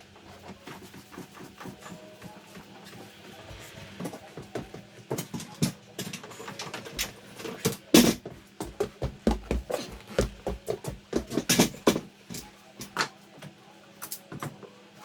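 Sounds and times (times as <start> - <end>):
knocks and taps on wood: 8.6 - 12.0.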